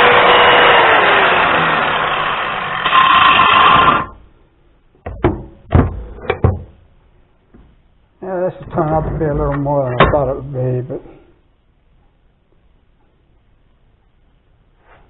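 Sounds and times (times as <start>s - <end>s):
power grinder grinding metal: 0.0s - 4.2s.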